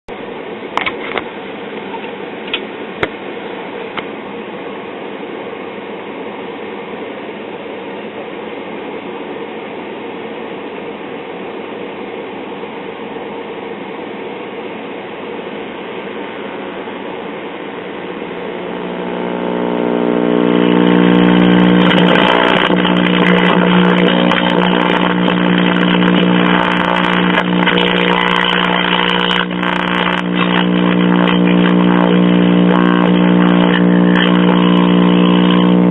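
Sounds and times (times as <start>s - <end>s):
buzzing hum with crackling: 16.1s - 35.9s
radio speaker hiss: 16.1s - 35.9s.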